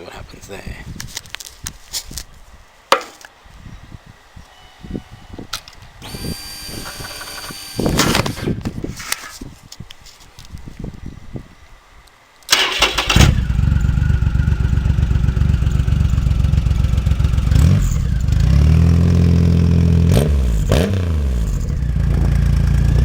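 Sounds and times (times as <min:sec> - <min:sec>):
starter motor cranking: 0:06.0 - 0:08.6, 0:12.5 - 0:13.8
motorcycle engine idling and revving: 0:12.7 - 0:23.0.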